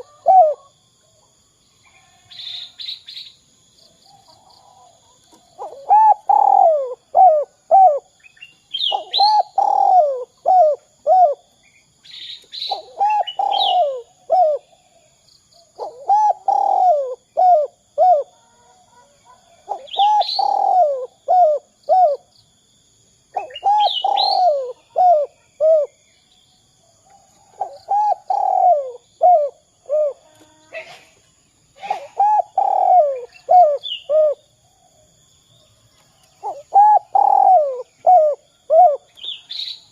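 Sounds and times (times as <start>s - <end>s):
dove cooing: 0.0s - 0.7s, 4.4s - 11.5s, 12.7s - 15.0s, 15.8s - 22.3s, 23.4s - 26.0s, 27.4s - 31.0s, 31.8s - 34.4s, 36.4s - 39.4s
small birds chirping: 0.0s - 22.5s, 23.3s - 39.9s.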